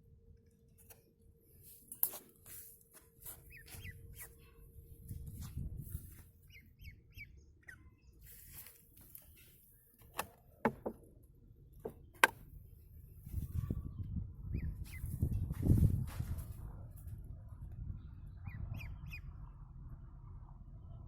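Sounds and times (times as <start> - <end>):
ducklings peeping: 3.4 - 4.4, 6.0 - 8.0, 18.3 - 19.2.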